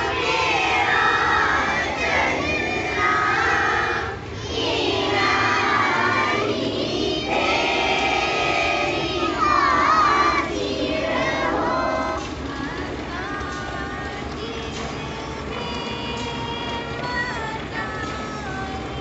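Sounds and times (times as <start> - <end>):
children chanting: 0.0 - 14.5.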